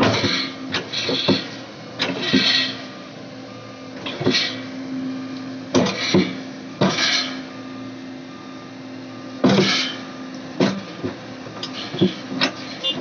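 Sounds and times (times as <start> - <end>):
machine knocks and squeals: 0.0 - 2.9, 4.0 - 4.7, 5.7 - 7.6, 9.3 - 13.0
diesel engine running: 0.0 - 13.0.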